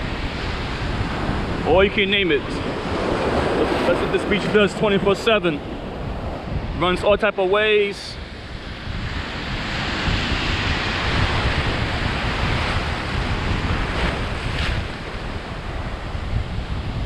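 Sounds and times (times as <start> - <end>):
surf breaking and washing: 0.0 - 7.9
wind buffeting microphone: 0.0 - 17.0.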